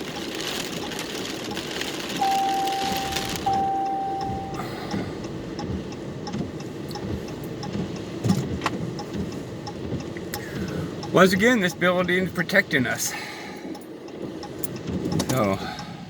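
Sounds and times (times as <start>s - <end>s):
hiss of rain: 0.0s - 16.0s
long electronic beeps: 2.2s - 4.9s
faint regular ticking: 2.4s - 12.5s, 13.6s - 15.9s.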